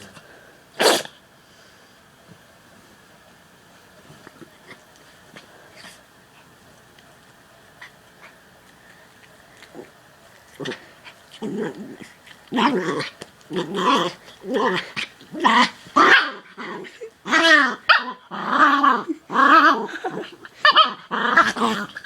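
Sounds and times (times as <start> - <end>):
dog growl-barking: 0.8 - 1.1, 10.6 - 22.0.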